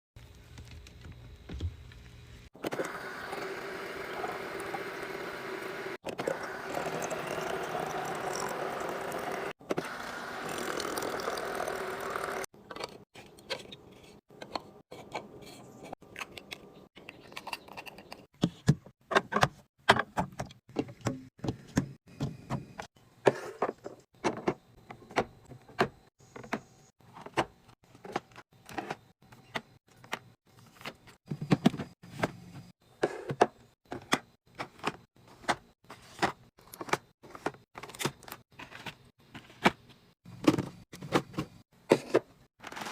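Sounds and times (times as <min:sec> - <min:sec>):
items clicking and clinking: 0:12.1 - 0:32.4, 0:33.0 - 0:42.9.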